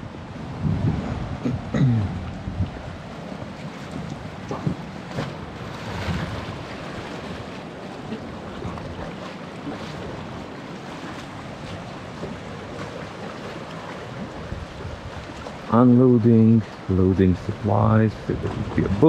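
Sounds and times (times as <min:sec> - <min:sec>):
wind buffeting microphone: 0:00.0 - 0:07.5, 0:14.0 - 0:19.0
sea waves washing at shore: 0:00.0 - 0:19.0.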